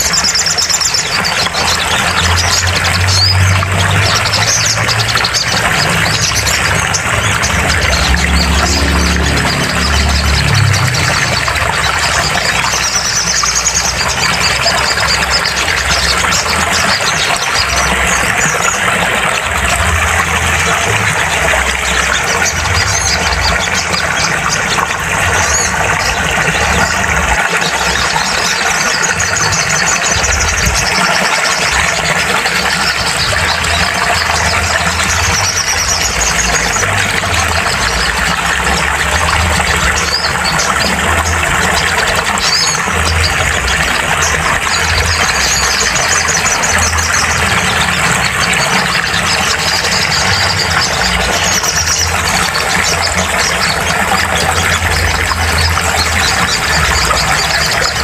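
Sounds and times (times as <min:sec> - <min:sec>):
bird trills and chirps: 0:00.0 - 0:58.0.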